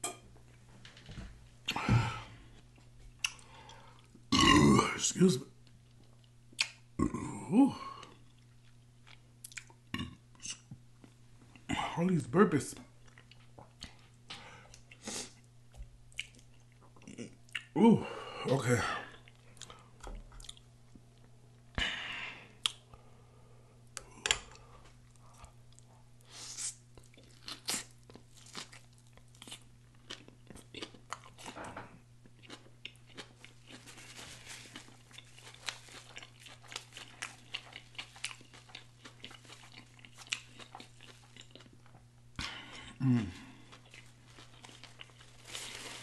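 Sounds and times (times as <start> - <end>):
person chewing food: 1.6 - 4.3, 7.9 - 11.7, 13.0 - 15.5, 16.1 - 17.8, 19.0 - 21.3, 22.5 - 23.0, 23.8 - 46.0
soft crunches: 43.9 - 46.0.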